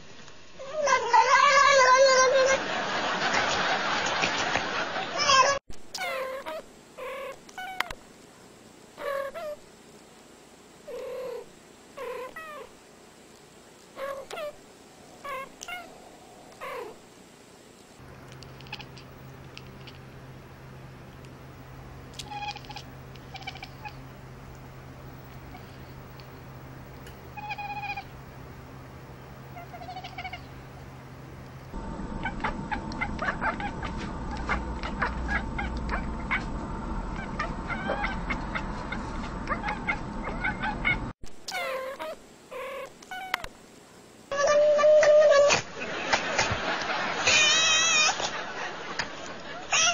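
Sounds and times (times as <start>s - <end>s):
low hum: 14.7s - 41.2s
cats meowing: 15.2s - 17.0s, 18.5s - 19.0s, 22.1s - 24.0s, 27.3s - 28.1s, 29.6s - 30.5s, 32.2s - 36.5s, 37.2s - 43.5s, 44.3s - 45.6s, 47.2s - 48.2s, 49.7s - 49.9s.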